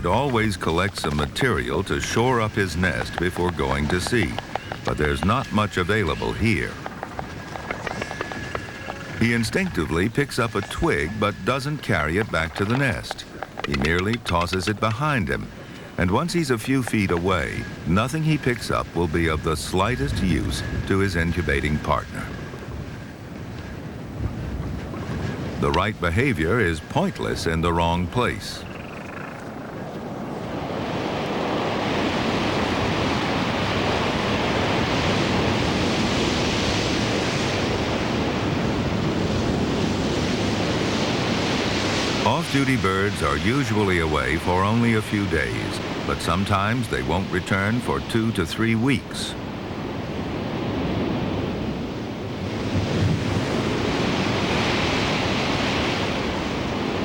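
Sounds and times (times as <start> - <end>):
sea surf: 0.0 - 57.0
wind: 0.0 - 57.0.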